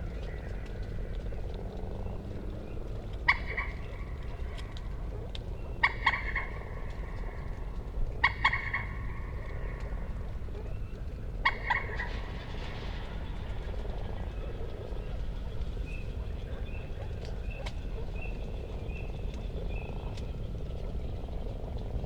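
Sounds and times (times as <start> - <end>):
steady low rumble: 0.0 - 22.0
moorhen calling: 3.2 - 4.7, 5.6 - 10.7, 11.4 - 12.2.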